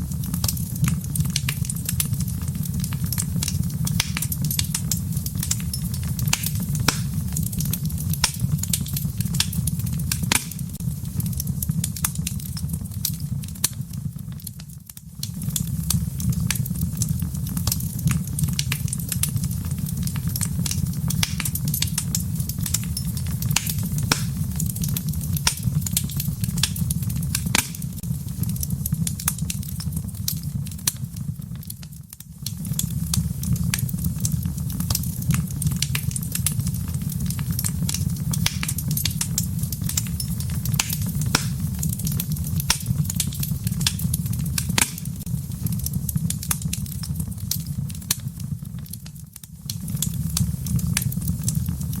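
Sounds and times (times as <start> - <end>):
wood fire crackling: 0.0 - 52.0.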